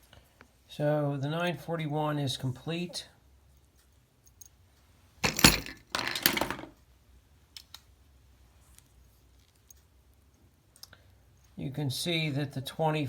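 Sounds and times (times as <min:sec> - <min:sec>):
metallic clattering and rattling: 0:05.2 - 0:06.8.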